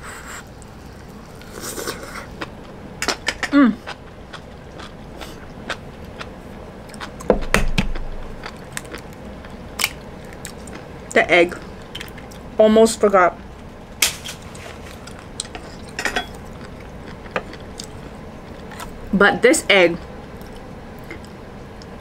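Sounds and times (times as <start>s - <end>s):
chewing noodles: 3.8s - 7.3s.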